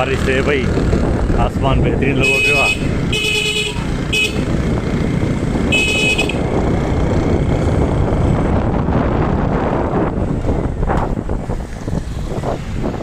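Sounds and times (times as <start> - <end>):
wind on microphone: 0.0 - 3.2, 3.9 - 13.0
vehicle rumble on road: 0.0 - 13.0
vehicle horn toot: 2.2 - 4.6, 5.7 - 6.5.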